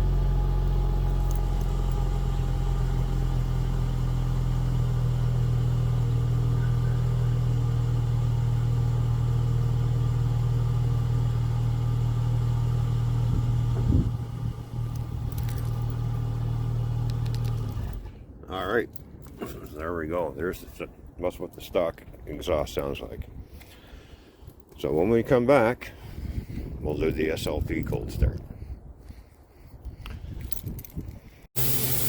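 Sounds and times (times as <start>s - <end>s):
car engine idling: 0.0s - 18.1s.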